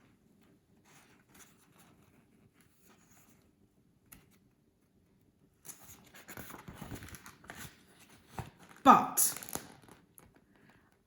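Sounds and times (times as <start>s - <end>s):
paper page rustling: 5.6s - 10.7s.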